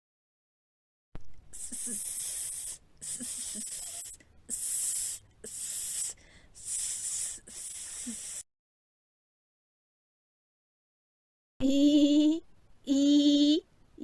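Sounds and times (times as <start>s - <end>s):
person breathing: 1.5s - 8.4s
person making hissing sss sound: 1.5s - 8.5s.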